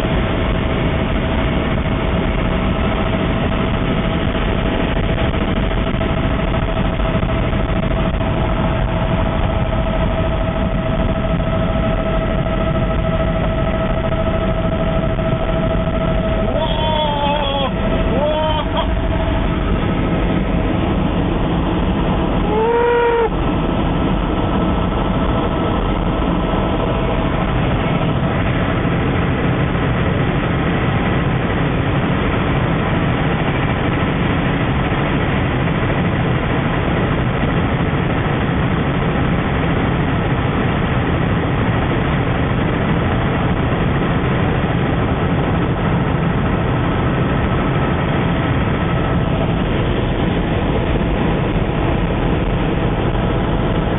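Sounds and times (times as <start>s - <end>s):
loud engine noise: 0.0s - 53.9s
short pitched tone: 22.3s - 23.4s.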